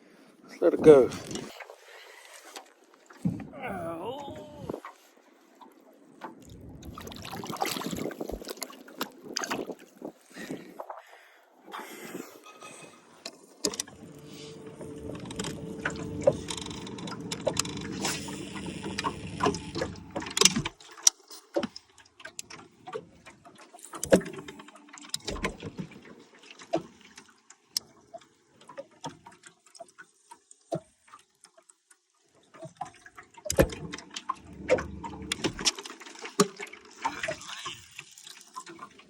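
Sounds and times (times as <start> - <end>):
small motor humming: 13.9 - 20.4
sharp clicks and knocks: 15.0 - 21.7.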